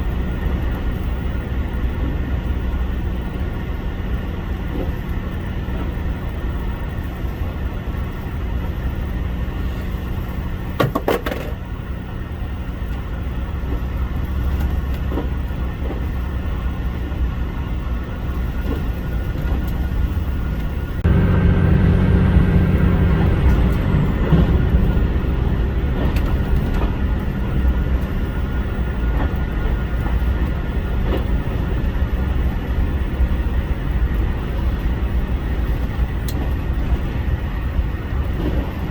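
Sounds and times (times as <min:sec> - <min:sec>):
diesel railcar engines drumming: 0:00.0 - 0:38.9.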